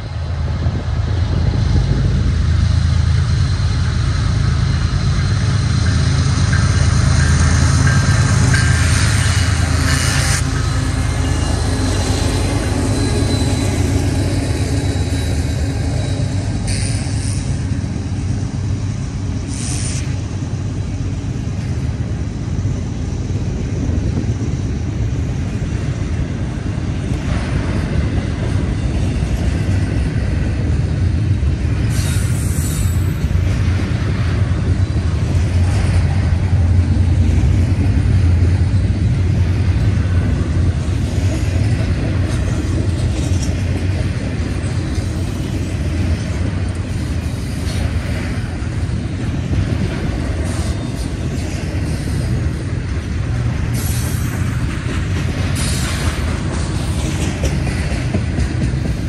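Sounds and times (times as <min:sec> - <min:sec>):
freight train wheels rumbling on rail: 0:00.0 - 0:59.0
high-pitched wheel squeals: 0:06.5 - 0:17.6.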